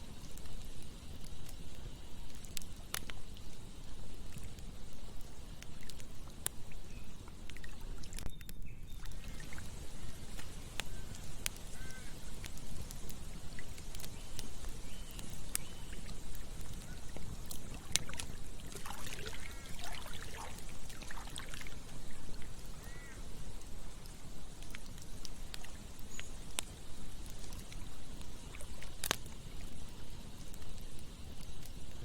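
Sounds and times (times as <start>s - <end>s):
campfire crackling: 0.0s - 32.0s
trickling water: 0.0s - 32.0s.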